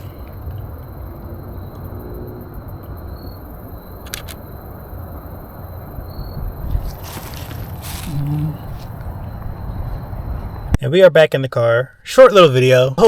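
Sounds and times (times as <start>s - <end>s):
quick clicks: 4.0s - 4.4s.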